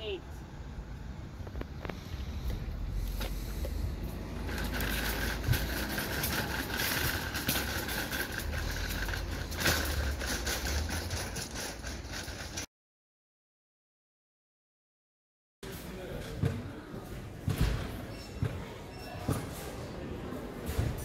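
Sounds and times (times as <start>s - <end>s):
engine low rumble: 0.1s - 12.6s.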